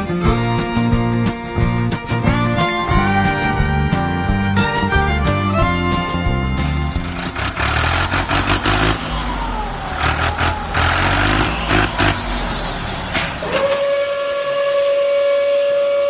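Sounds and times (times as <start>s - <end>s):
engine running and revving: 2.3s - 13.5s
high whistle-like horn tone: 13.4s - 16.0s.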